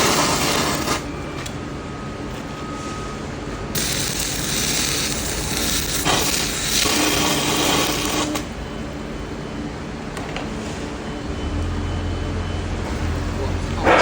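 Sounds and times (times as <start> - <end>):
arc welder crackling hiss: 0.0 - 1.1, 3.7 - 8.6.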